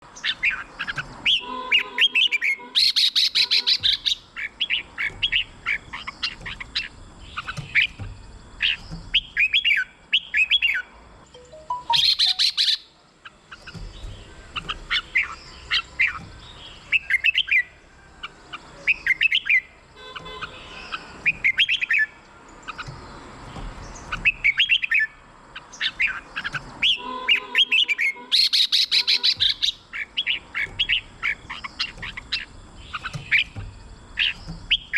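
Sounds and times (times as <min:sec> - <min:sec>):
bird singing whistled notes: 0:00.2 - 0:08.0, 0:08.6 - 0:12.9, 0:13.6 - 0:23.0, 0:23.8 - 0:34.9
harsh bird chattering: 0:00.2 - 0:08.0, 0:11.5 - 0:16.2, 0:24.1 - 0:33.6.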